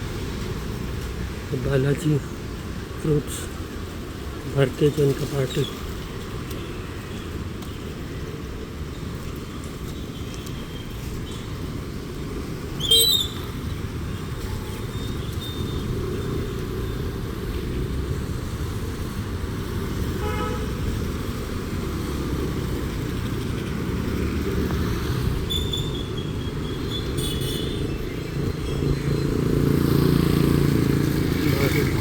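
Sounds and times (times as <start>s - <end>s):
road traffic: 0.0s - 32.0s
vehicle horn toots: 20.2s - 20.8s, 27.2s - 27.9s.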